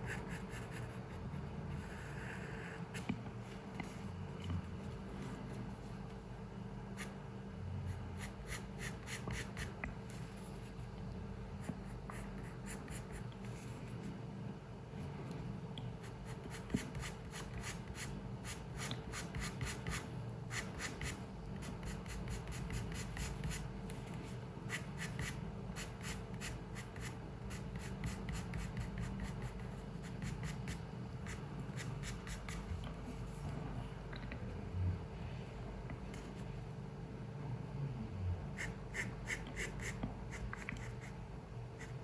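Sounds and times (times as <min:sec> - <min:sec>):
low room hum: 0:00.0 - 0:42.0
drawing tool scratching on paper: 0:16.0 - 0:32.8, 0:38.6 - 0:41.2.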